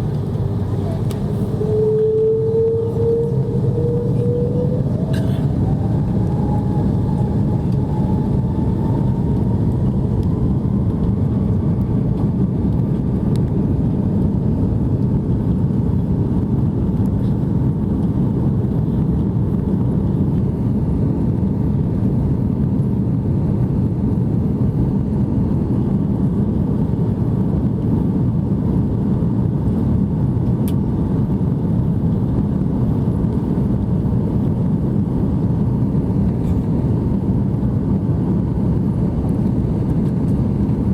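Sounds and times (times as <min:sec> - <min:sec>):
faint rising whine: 0:00.0 - 0:12.3
jet cabin engine rumble: 0:00.0 - 0:40.9.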